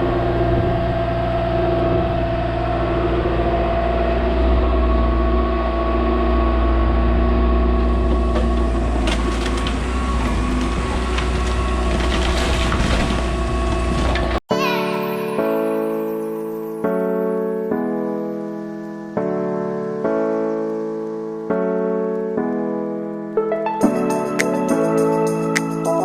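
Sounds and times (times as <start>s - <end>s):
excavator engine rumble: 0.0s - 14.4s
hydraulic whine: 0.0s - 14.4s
knocks and clatter: 7.7s - 14.4s.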